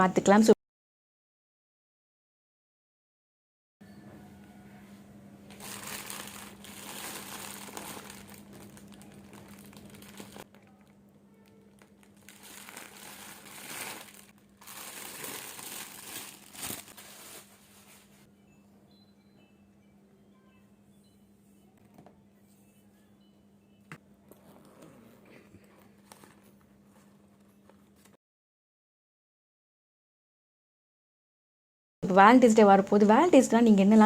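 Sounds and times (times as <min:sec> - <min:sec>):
packaging crinkling: 0:05.5 - 0:18.1.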